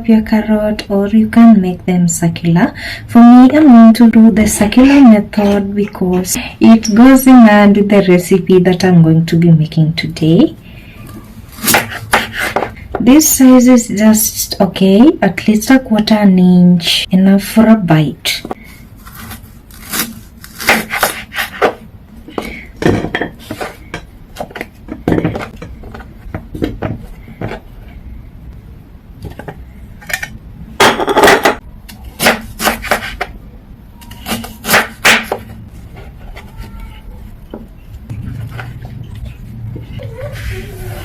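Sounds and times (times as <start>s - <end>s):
knife chopping carrot on board: 11.6s - 12.7s, 32.2s - 33.3s.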